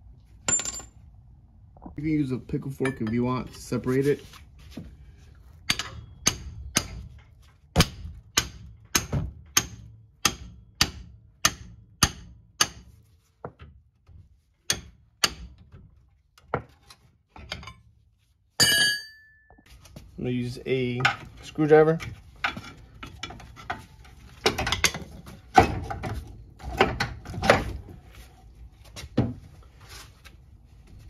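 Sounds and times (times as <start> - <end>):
hammer striking steel: 5.7 - 7.0, 7.8 - 12.9, 18.6 - 19.5.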